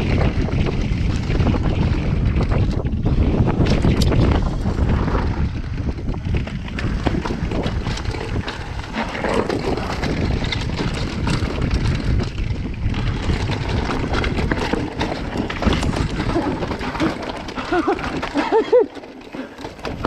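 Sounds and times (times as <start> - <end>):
bike rattling over rough ground: 0.0 - 20.0
bike tyre roar on dirt: 0.0 - 20.0
wind buffeting microphone: 0.0 - 20.0.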